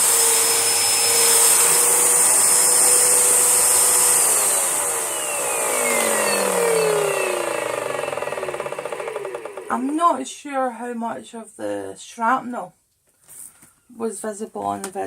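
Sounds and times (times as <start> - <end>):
vacuum cleaner running: 0.0 - 10.2
vacuum motor winding down: 0.0 - 10.2.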